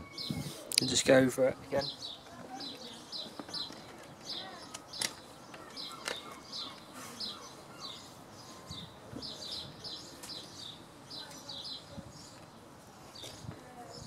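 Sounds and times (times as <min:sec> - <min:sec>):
small bird chirping: 0:01.6 - 0:12.5.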